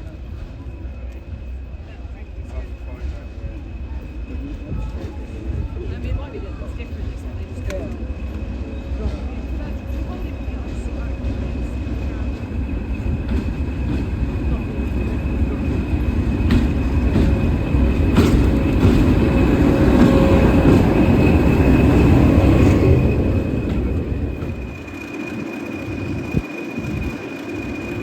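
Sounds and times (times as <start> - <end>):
train rumbling past: 0.0 - 28.0.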